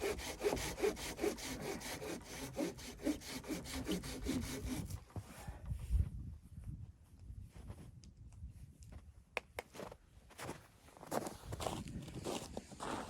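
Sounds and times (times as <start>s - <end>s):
hand saw cutting wood: 0.0s - 5.0s.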